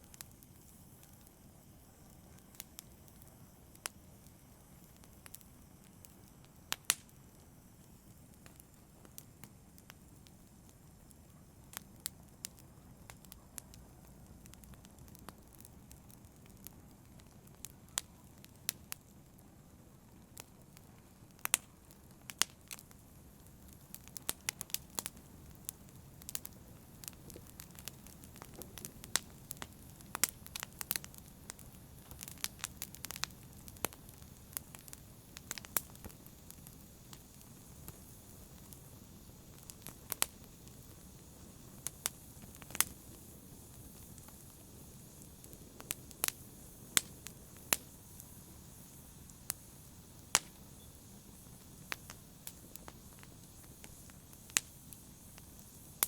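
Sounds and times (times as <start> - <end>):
campfire crackling and popping: 0.0 - 56.0
steady rush of flame: 0.0 - 56.0.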